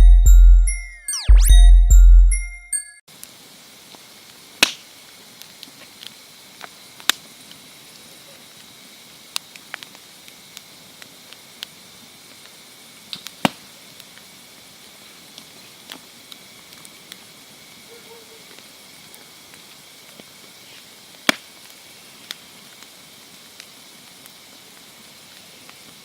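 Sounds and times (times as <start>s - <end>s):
campfire crackling: 3.1s - 26.0s
fire pops and snaps: 3.2s - 17.6s, 18.5s - 26.0s.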